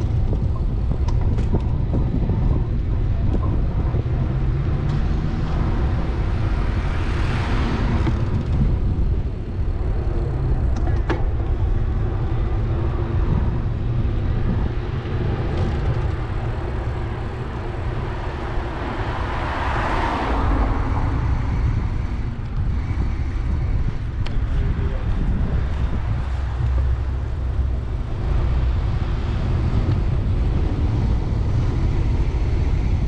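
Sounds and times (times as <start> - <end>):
wind and road noise: 0.0 - 33.0
car passing: 1.7 - 33.0.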